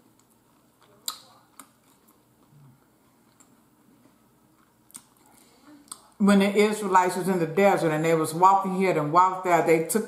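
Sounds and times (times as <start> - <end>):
mouth clicks and smacks chewing: 0.1 - 6.2.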